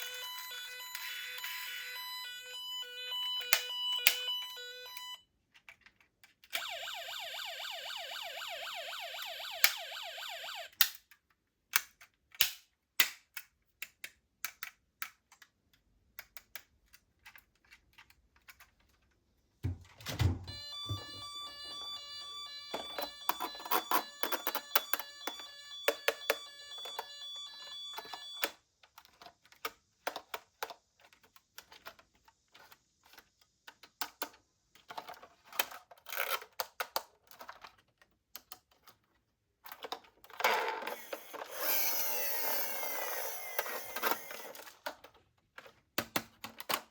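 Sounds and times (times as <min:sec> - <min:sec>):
toy electronic siren warbling: 0:00.0 - 0:05.2, 0:06.6 - 0:10.8, 0:20.5 - 0:28.5, 0:40.8 - 0:44.6
toy siren steady tones: 0:00.0 - 0:05.2, 0:06.6 - 0:10.8, 0:20.5 - 0:28.6, 0:40.8 - 0:44.7
plastic toy cars clicking: 0:05.5 - 0:06.6, 0:10.7 - 0:19.2, 0:27.9 - 0:46.9.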